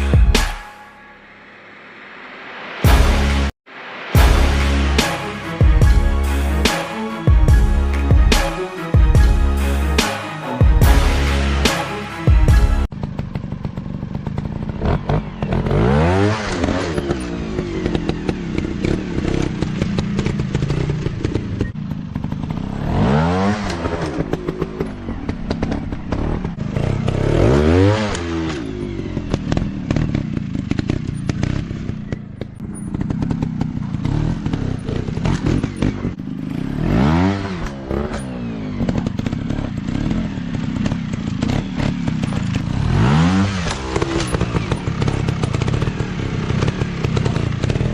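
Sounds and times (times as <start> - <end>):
dirt bike engines revving: 14.2 - 47.9.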